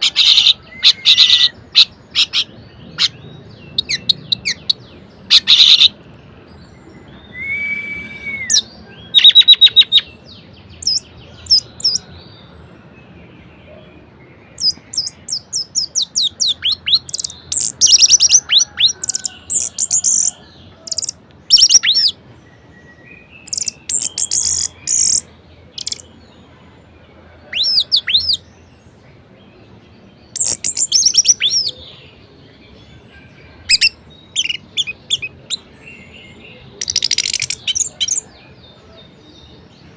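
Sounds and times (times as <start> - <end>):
low drawn-out whistle: 7.3 - 8.7.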